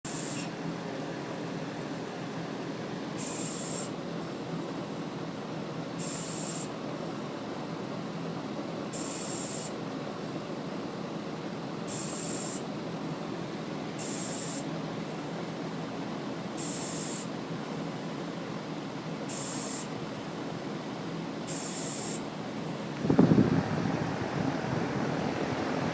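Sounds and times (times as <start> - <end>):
compressor droning: 21.4 - 25.9.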